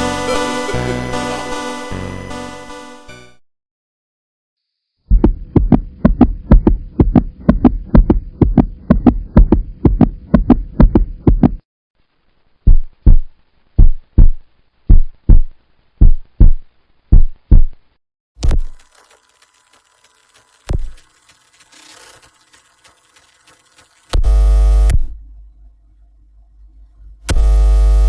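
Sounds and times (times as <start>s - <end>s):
heartbeat thumps: 5.1s - 11.6s, 12.6s - 17.8s.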